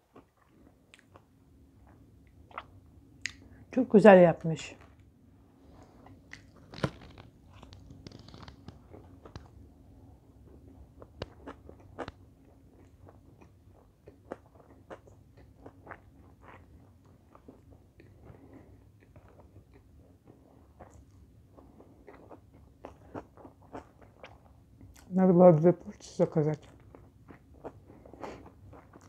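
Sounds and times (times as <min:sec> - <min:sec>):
chewing crunches and clicks: 0:00.0 - 0:03.4, 0:06.0 - 0:09.6, 0:11.0 - 0:25.1, 0:26.6 - 0:29.0
crunch of biting sushi: 0:06.0 - 0:09.5.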